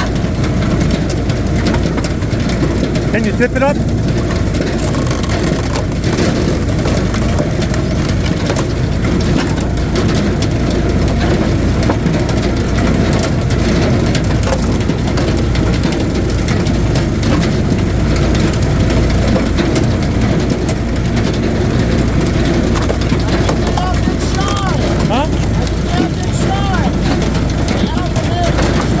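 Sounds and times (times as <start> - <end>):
wood cracking and snapping: 0.0 - 29.0
wood splitter engine running: 0.0 - 29.0.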